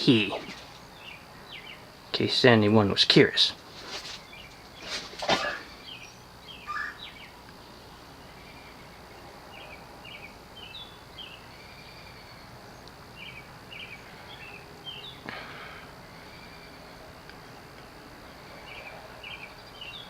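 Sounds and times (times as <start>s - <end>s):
background hiss: 0.0s - 20.0s
birds chirping faintly: 0.0s - 20.0s
faint high whine: 0.0s - 20.0s.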